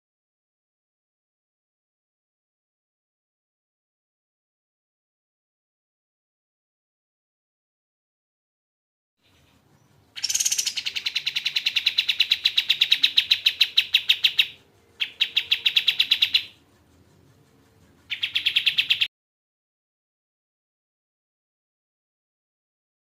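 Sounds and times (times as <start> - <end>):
bird singing fast trills: 9.2 - 16.6, 18.1 - 19.1.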